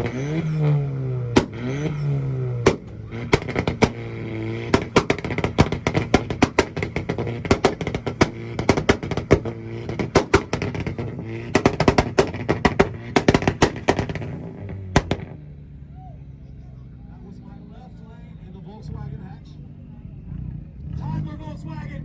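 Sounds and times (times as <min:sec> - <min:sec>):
car engine revving on limiter: 0:00.0 - 0:15.4
exhaust pops and bangs: 0:00.0 - 0:15.4.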